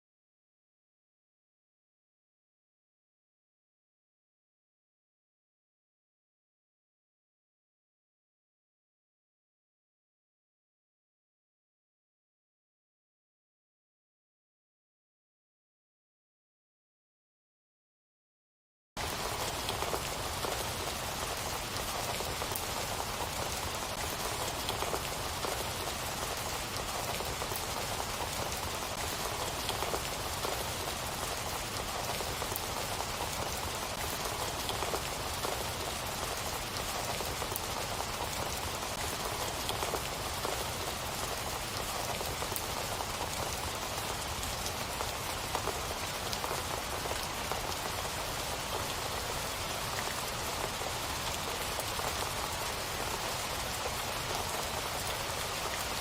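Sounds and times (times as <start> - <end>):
rain falling steadily: 19.0 - 56.0.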